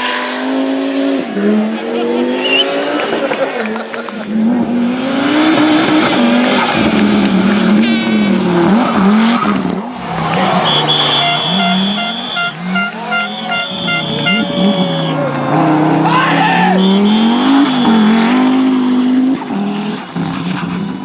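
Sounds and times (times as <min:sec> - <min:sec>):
rally car engine revving: 0:00.0 - 0:21.0
high-pitched tone: 0:10.7 - 0:15.7.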